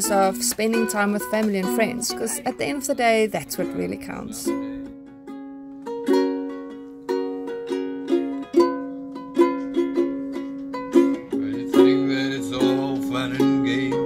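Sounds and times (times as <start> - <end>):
person's voice: 0.0 - 4.9
stringed instrument strumming chords: 0.0 - 14.0.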